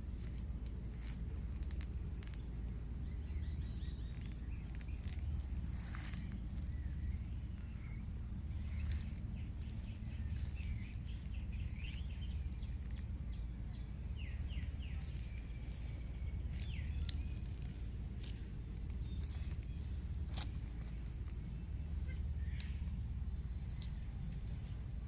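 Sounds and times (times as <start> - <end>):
birds chirping: 0.0 - 25.0
steady low rumble: 0.0 - 25.0.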